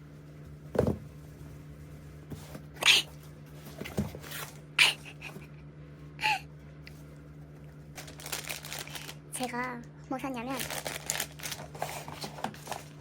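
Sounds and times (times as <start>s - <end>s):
packaging rustling and ripping: 8.0s - 9.5s, 10.5s - 13.0s.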